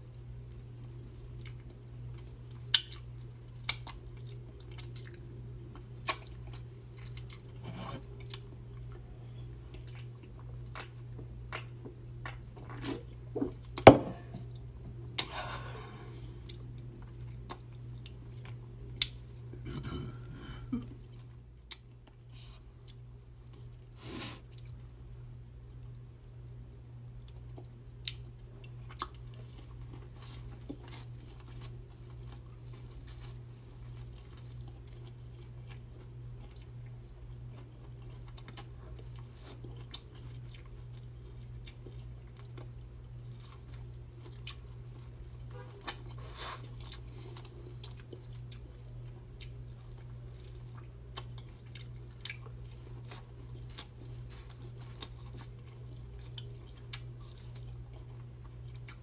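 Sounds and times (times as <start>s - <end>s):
chewing and biting food: 0.5s - 14.7s, 27.2s - 59.0s.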